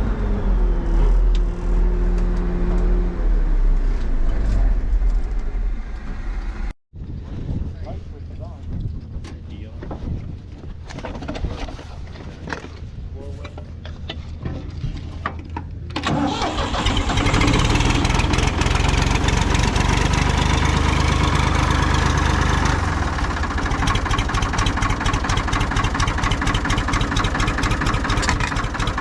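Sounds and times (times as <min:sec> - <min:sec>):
combine engine starting and idling: 0:15.9 - 0:29.0.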